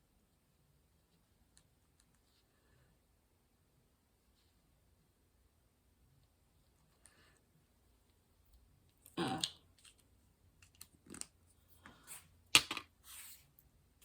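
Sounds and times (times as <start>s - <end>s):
hands handling small plastic containers: 8.5s - 12.9s.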